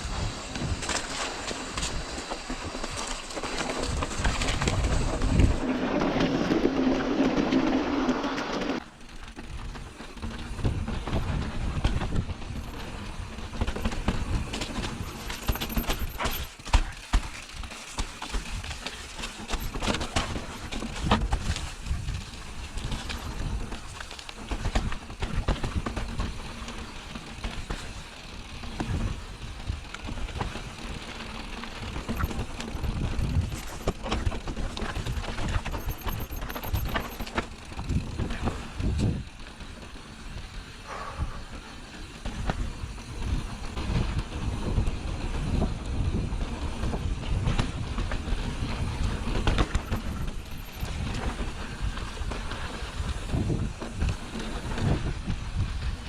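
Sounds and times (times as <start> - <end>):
mountain bike rattling on rough trail: 0.0 - 56.0
wind on microphone: 32.1 - 39.3, 52.8 - 56.0.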